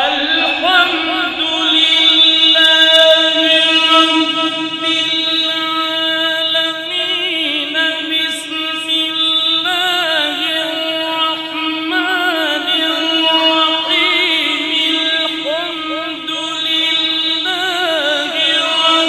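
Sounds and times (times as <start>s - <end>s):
held drone note: 0.0s - 8.2s
man chanting ornamented melody: 0.0s - 19.0s.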